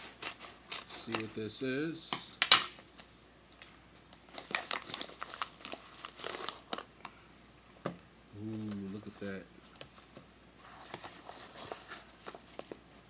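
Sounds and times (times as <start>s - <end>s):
packaging crinkling and tearing: 0.0s - 1.3s, 4.2s - 6.9s, 10.7s - 12.8s.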